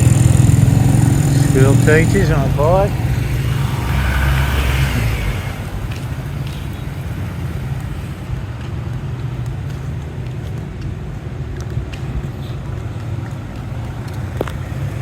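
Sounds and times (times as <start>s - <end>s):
vehicle passing close by: 0.0s - 8.7s
vehicle engines running: 0.0s - 15.0s.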